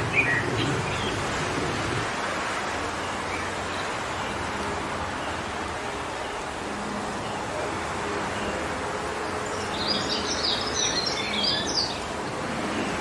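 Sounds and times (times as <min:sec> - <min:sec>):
wind blowing through trees: 0:00.0 - 0:13.0
bird chirping: 0:09.5 - 0:12.0.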